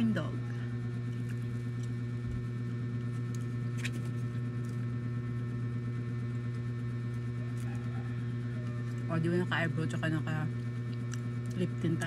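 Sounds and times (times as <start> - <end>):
steady low hum: 0.0 - 12.0
crunch of biting and chewing: 3.1 - 4.8, 7.4 - 9.1.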